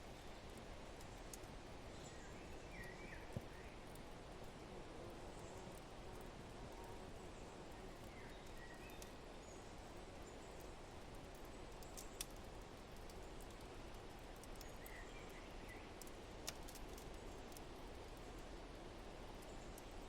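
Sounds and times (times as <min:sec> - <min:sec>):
wood fire crackling and popping: 0:00.2 - 0:04.6, 0:07.6 - 0:09.3, 0:10.5 - 0:18.6, 0:19.2 - 0:20.0.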